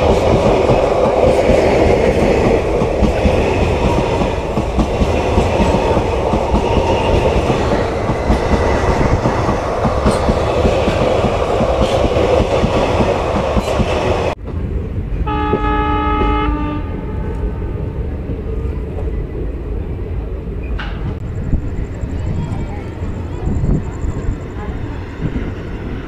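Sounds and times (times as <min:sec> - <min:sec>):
moving train rumble: 0:00.0 - 0:26.0
train coaches rushing past: 0:00.0 - 0:26.0
train horn: 0:15.2 - 0:17.5.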